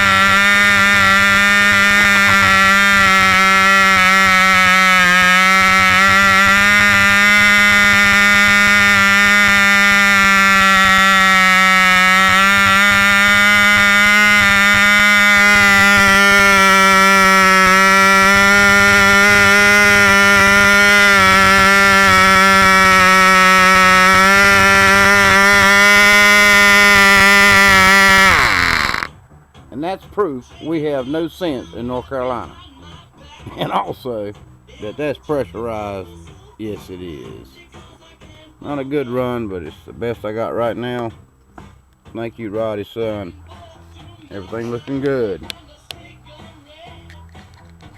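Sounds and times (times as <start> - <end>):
model engine high-pitched buzz: 0.0 - 29.2.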